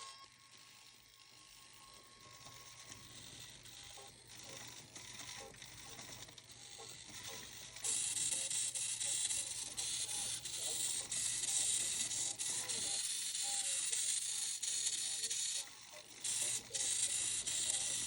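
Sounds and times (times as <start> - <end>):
mechanical whirring and clicking: 0.0 - 18.0.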